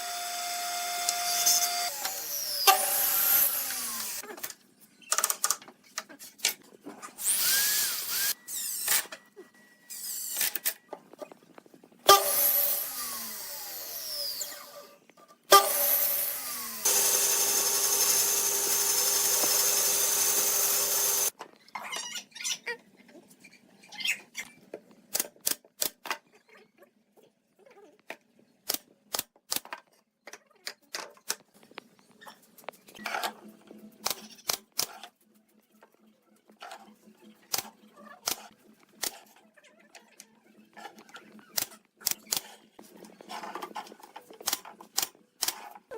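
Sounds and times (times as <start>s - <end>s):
power tool spinning: 0.0s - 4.2s, 7.2s - 9.0s, 12.1s - 21.4s.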